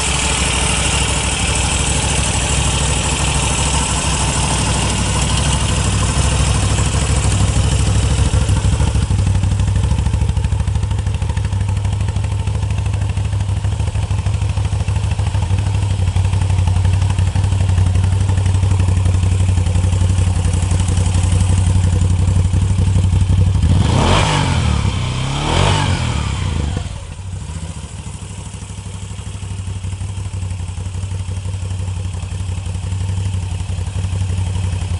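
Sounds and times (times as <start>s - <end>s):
motorcycle engine idling and revving: 0.0s - 34.9s.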